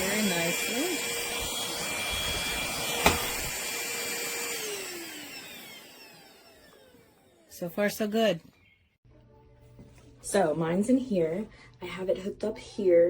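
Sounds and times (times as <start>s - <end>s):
vacuum motor whine: 0.0s - 7.5s.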